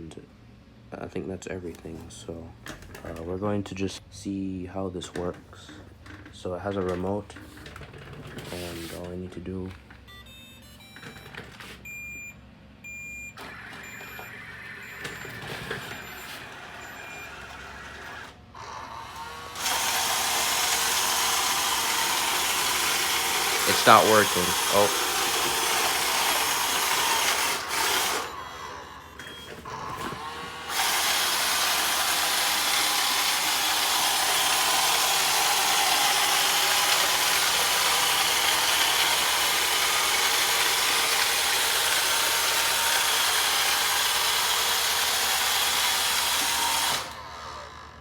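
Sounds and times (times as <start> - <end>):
robot vacuum whirring: 13.4 - 48.0.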